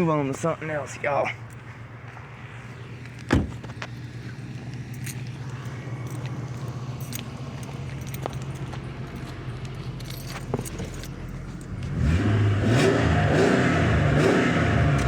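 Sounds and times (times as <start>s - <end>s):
car engine idling: 0.0s - 12.2s
loud thump: 3.3s - 3.7s.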